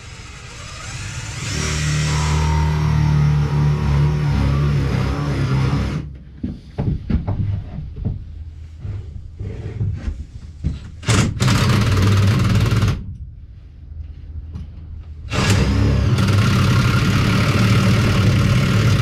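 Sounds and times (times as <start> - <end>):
electric power tool running: 15.3 - 19.0.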